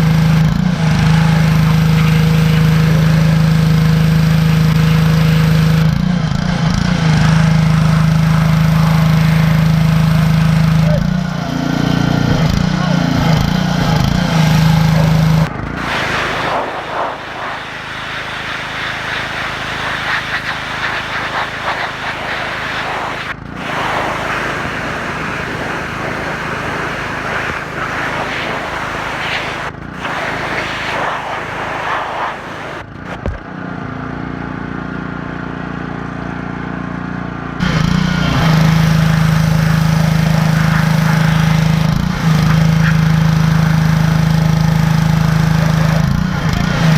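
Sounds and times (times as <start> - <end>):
pressure washer engine hum: 15.8 - 33.2
water jet spraying: 15.8 - 33.2.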